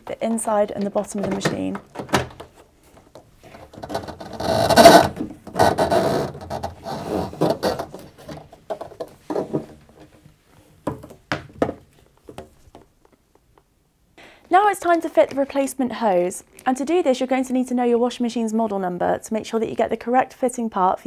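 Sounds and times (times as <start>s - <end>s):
plastic hose scraping against casing: 3.4s - 10.2s.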